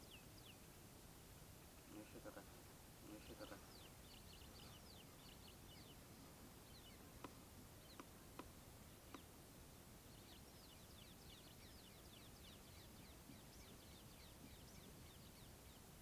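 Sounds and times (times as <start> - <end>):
faint sharp clicks: 7.2 - 9.3.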